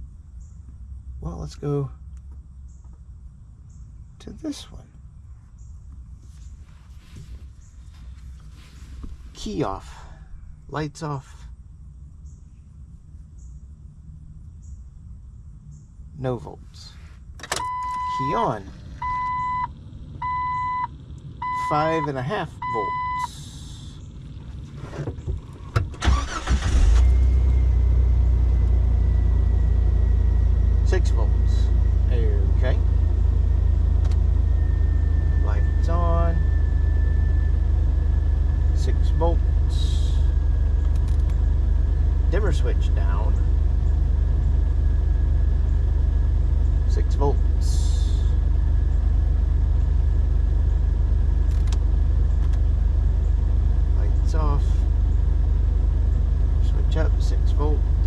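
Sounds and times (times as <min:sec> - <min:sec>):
low mechanical rumble: 0:00.0 - 0:58.0
engine cranking and idling: 0:17.3 - 0:58.0.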